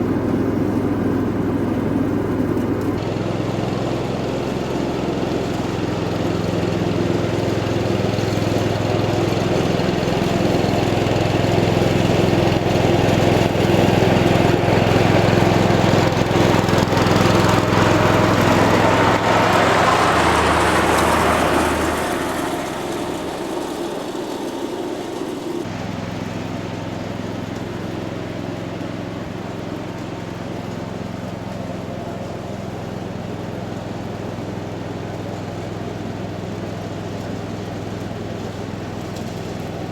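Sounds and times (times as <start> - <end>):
garden tractor engine mowing: 0.0 - 39.9.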